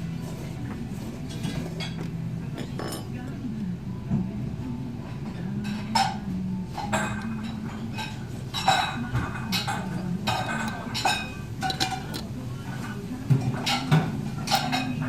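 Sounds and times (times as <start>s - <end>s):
low steady hum: 0.0s - 15.0s
dishes and cutlery clinking: 0.1s - 3.2s, 5.1s - 15.0s.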